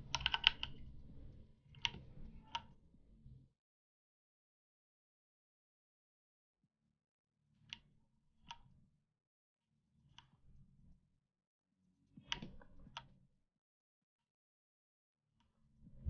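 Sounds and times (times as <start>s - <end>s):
computer mouse clicks: 0.0s - 0.9s, 1.8s - 2.7s, 12.2s - 13.1s.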